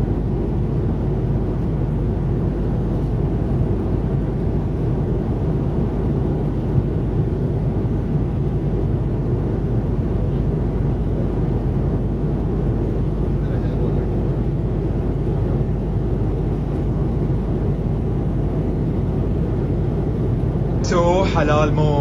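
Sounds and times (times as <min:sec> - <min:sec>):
airliner cabin engine noise: 0:00.0 - 0:22.0.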